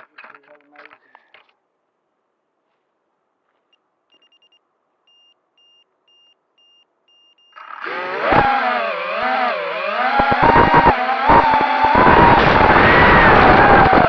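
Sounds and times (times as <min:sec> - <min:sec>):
high electronic beeps: 0:04.1 - 0:07.6
drone motors and propellers whining: 0:07.5 - 0:14.0.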